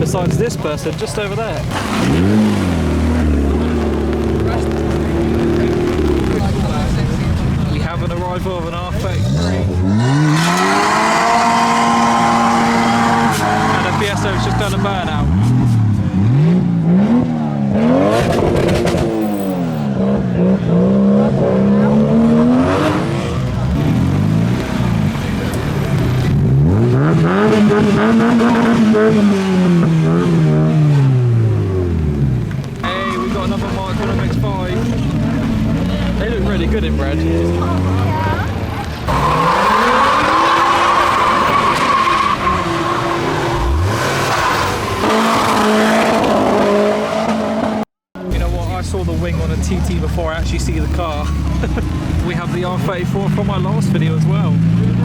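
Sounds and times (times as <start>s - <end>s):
tyres squealing: 0.0s - 15.8s, 32.5s - 47.8s
car engine revving hard: 0.0s - 55.0s
engine crackles: 0.0s - 55.0s.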